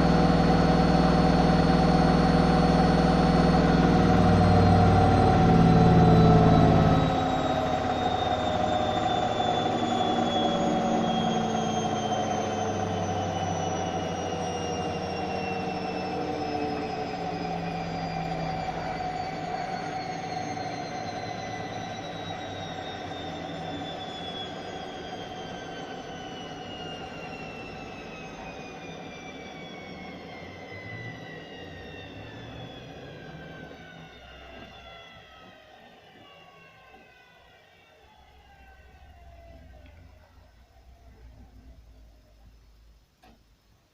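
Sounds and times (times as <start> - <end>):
fast dense rumble: 0.0 - 19.6
washing machine motor whine: 0.0 - 43.4.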